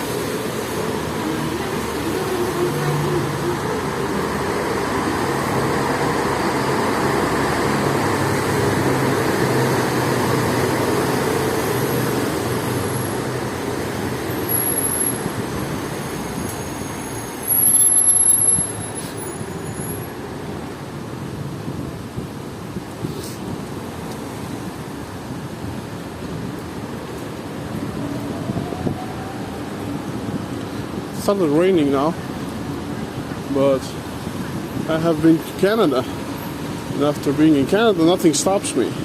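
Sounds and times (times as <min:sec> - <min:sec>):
heavy vehicle engine: 0:00.0 - 0:21.2
tyres on wet road: 0:00.0 - 0:39.0
high-pitched squeals: 0:14.4 - 0:20.1.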